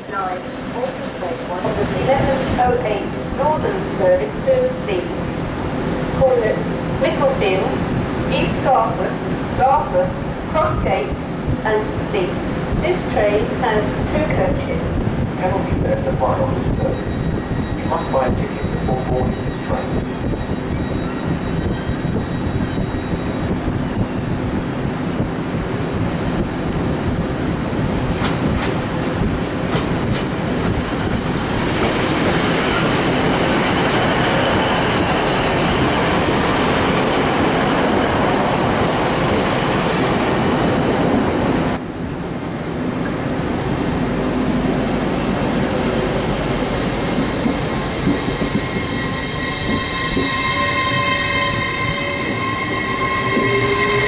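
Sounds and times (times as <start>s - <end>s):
train wheels squealing: 0.0s - 2.6s, 16.8s - 24.1s, 47.5s - 54.0s
train rumbling: 0.0s - 54.0s.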